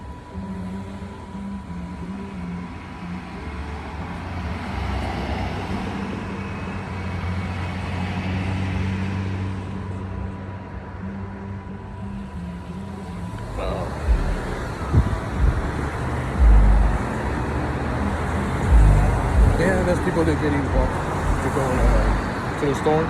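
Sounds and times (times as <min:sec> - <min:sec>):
car engine and tyre noise: 0:00.0 - 0:23.0
steady low hum: 0:11.8 - 0:22.4.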